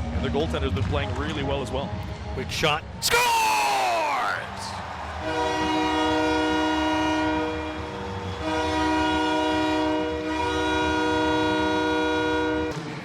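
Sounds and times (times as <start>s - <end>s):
arena goal horn blasts: 5.2s - 7.8s, 8.4s - 12.8s.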